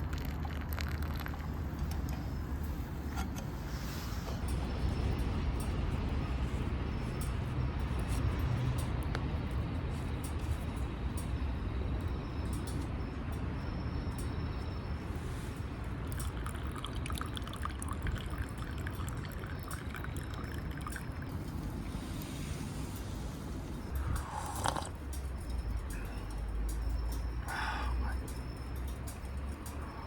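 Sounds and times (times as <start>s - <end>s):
liquid pouring: 0.0s - 2.1s, 16.1s - 21.3s.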